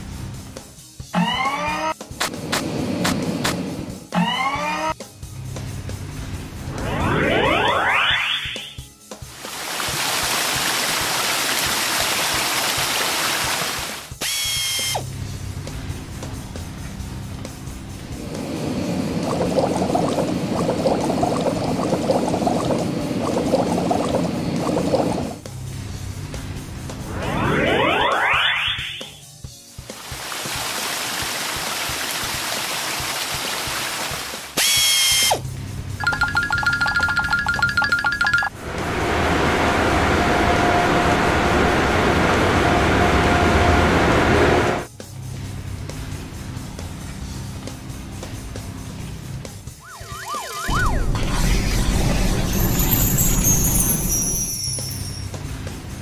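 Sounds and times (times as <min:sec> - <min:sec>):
children's music: 0:36.0 - 0:38.6
short high tone: 0:52.4 - 0:55.3.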